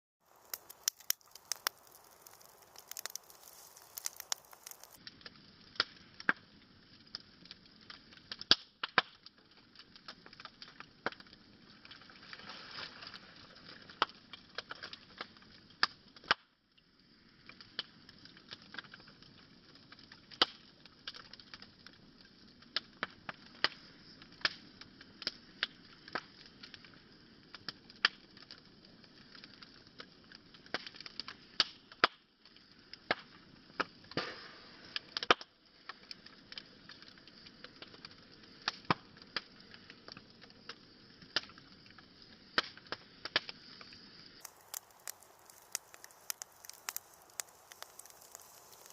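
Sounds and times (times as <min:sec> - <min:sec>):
wood fire crackling: 0:00.2 - 0:48.9.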